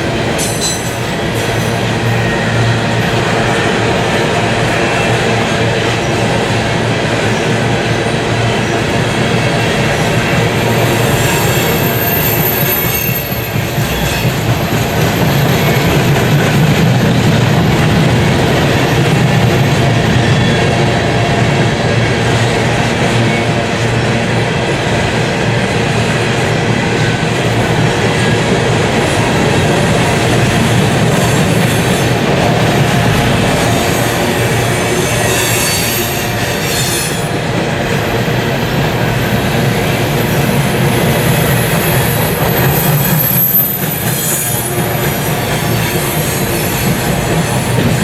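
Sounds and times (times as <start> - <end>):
train wheels rumbling on rails: 0.0 - 48.0
high wheel squeal: 10.6 - 16.4, 33.1 - 37.4.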